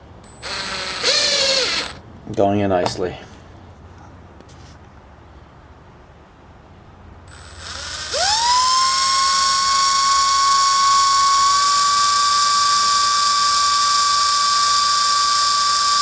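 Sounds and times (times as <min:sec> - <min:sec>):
cordless drill whining: 0:00.3 - 0:02.0, 0:07.3 - 0:16.0.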